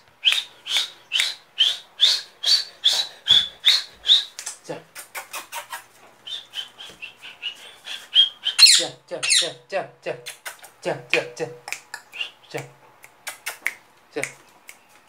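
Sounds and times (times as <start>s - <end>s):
parrot chicks chirping: 0.2s - 4.4s, 5.1s - 9.6s.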